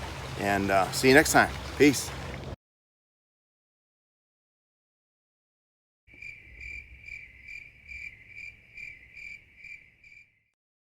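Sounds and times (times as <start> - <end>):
crickets chirping: 6.1 - 10.5.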